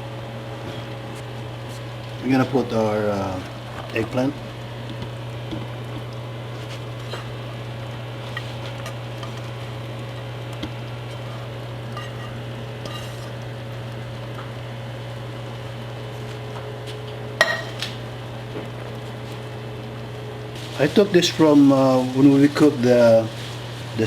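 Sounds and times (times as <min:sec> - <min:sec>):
cookware knock: 0:17.4 - 0:17.8
utensil clinking against pot: 0:17.4 - 0:18.0.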